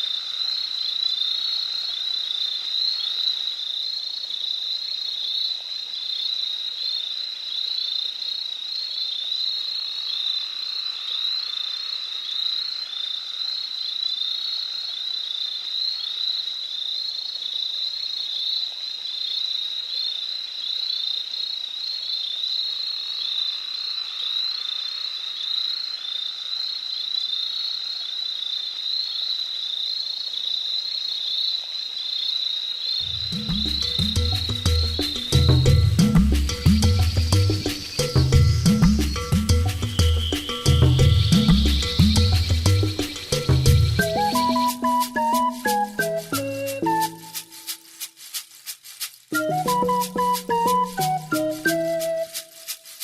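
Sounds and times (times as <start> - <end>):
rapid high chirping: 33.0 - 53.0.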